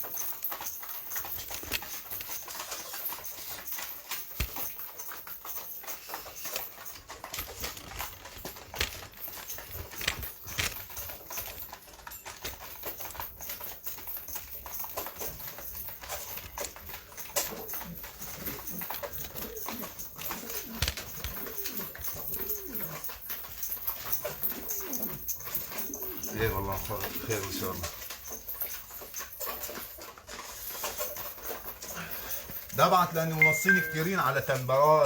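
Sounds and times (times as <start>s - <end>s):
pigeons tapping and scuffling: 0.0s - 35.0s.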